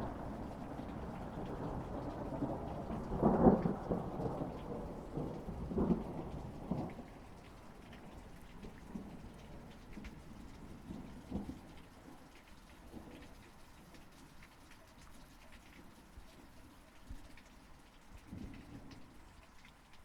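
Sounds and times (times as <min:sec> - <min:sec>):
thunder rumbling: 0:00.0 - 0:09.3
steady rain: 0:00.0 - 0:20.0.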